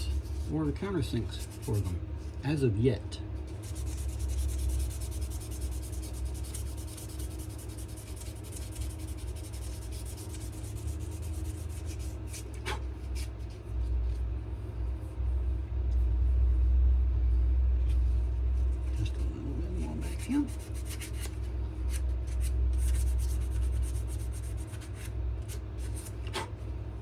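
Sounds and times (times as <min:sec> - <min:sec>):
sandpaper rubbing on wood: 0:01.3 - 0:02.0, 0:03.5 - 0:13.3, 0:19.8 - 0:21.4, 0:22.3 - 0:26.5
low rumble: 0:13.5 - 0:20.7.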